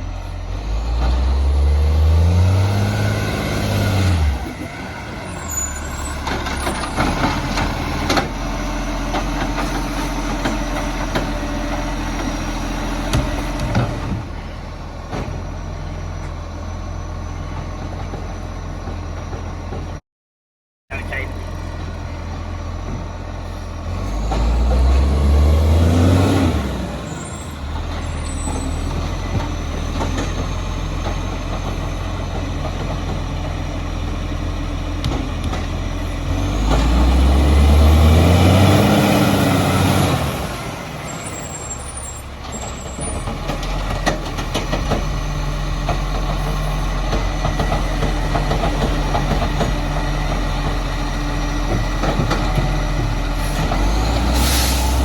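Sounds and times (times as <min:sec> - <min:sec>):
truck engine idling and revving: 0:00.0 - 0:20.0, 0:20.9 - 0:55.0
high squeal: 0:04.7 - 0:07.0, 0:41.0 - 0:43.3, 0:54.3 - 0:55.0.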